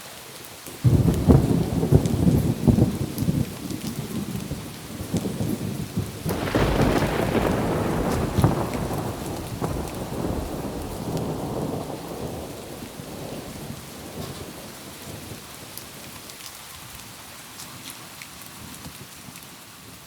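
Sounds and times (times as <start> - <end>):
steady rain: 0.0 - 20.0
low rumble of thunder: 0.8 - 16.2
sharp raindrop ticks: 6.2 - 14.8.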